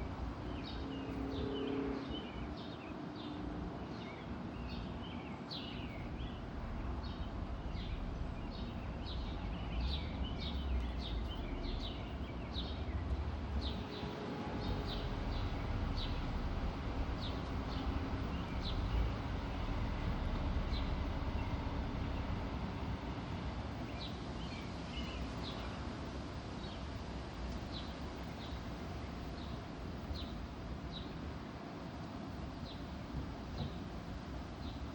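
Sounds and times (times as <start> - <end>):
steady low rumble: 5.8 - 25.3.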